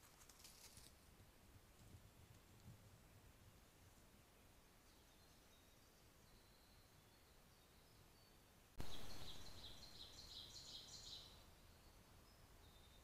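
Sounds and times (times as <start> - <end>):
quiet hiss: 0.0 - 13.0
high bird chirps: 8.8 - 13.0.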